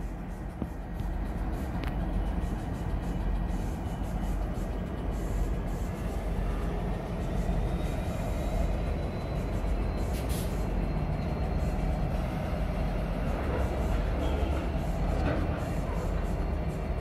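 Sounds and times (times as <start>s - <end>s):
locomotive engine rumble: 0.0s - 17.0s
short hiss: 10.1s - 10.6s.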